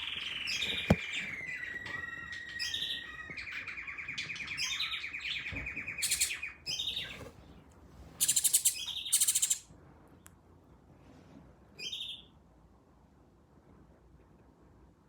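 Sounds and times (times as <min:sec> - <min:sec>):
bird trilling: 0:00.0 - 0:07.1, 0:08.2 - 0:09.6
harsh bird chattering calls: 0:06.0 - 0:07.1, 0:08.2 - 0:09.6.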